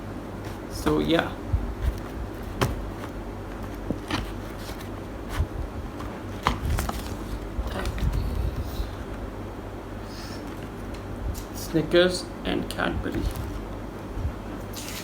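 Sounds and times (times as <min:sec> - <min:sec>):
packaging rustling: 0:00.3 - 0:09.3, 0:13.1 - 0:13.8.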